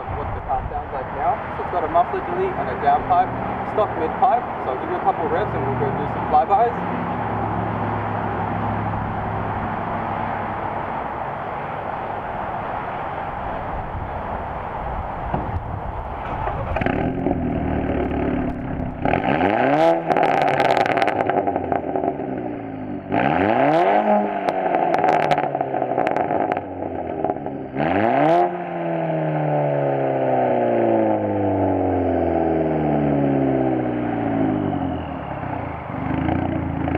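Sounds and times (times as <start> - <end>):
car engine idling: 0.0 - 23.1, 33.1 - 36.9
exhaust crackles: 0.0 - 29.8, 30.9 - 36.9.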